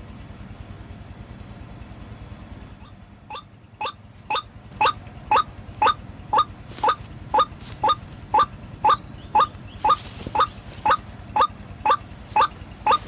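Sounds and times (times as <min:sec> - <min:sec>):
waterhen short calls: 0:02.8 - 0:13.0.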